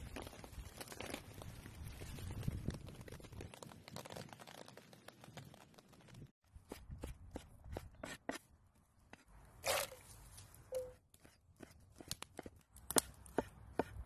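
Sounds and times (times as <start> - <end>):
knife chopping on wooden board: 13.3 - 14.0.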